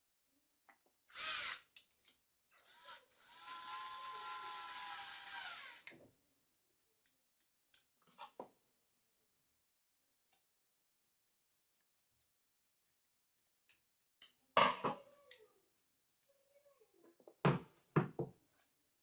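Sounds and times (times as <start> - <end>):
rotary hammer drill motor whining: 1.1 - 1.6, 2.6 - 6.0.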